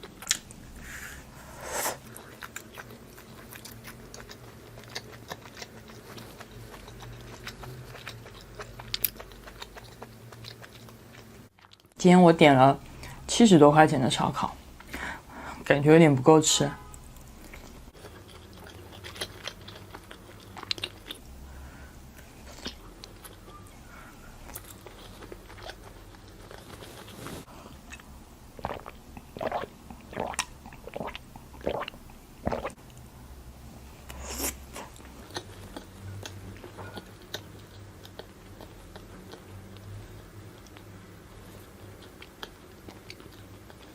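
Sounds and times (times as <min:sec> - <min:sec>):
chewing: 0:02.1 - 0:12.0, 0:17.2 - 0:21.3, 0:22.2 - 0:33.0, 0:34.1 - 0:43.9.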